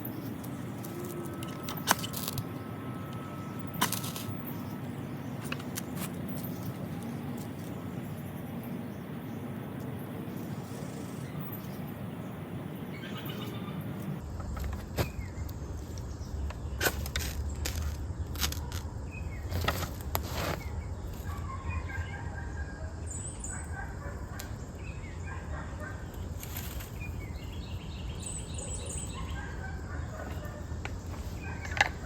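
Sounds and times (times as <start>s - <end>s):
handling clicks and rustles: 0.0s - 7.8s, 30.0s - 32.0s
small birds chirping: 0.0s - 32.0s.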